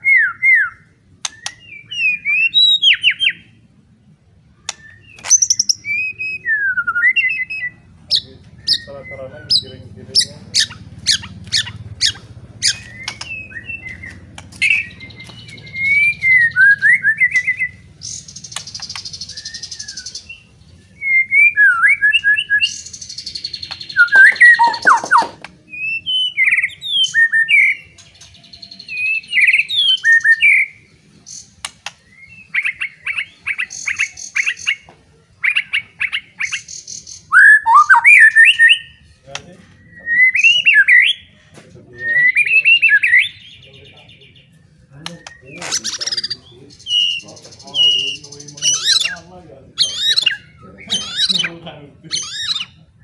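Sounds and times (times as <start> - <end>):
bird singing whistled song: 0.0 - 3.6, 4.6 - 34.8, 35.4 - 41.3, 41.9 - 51.5, 52.1 - 53.0
sharp clicks: 12.8 - 15.6.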